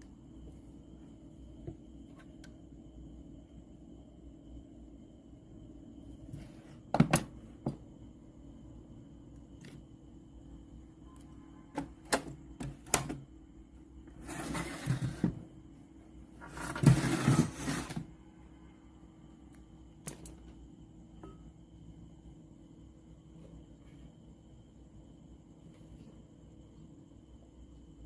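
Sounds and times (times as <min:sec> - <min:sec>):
faint steady hum: 0:00.0 - 0:28.0
rustling scraping noises: 0:14.2 - 0:15.4, 0:16.4 - 0:18.1.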